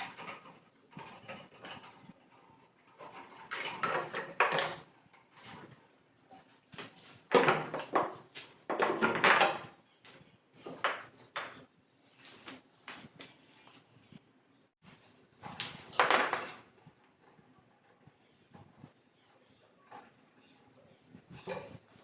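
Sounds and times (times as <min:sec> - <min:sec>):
hard objects clattering and scraping: 0:00.0 - 0:06.0, 0:06.6 - 0:09.8.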